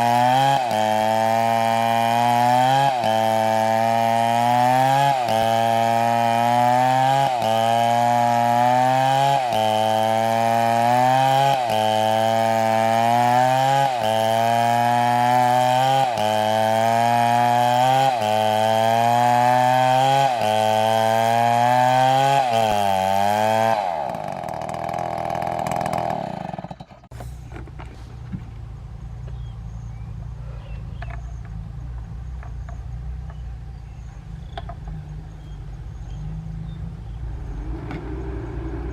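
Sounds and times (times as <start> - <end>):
chainsaw cutting wood: 0.0 - 28.5
low engine-like rumble: 27.2 - 38.9.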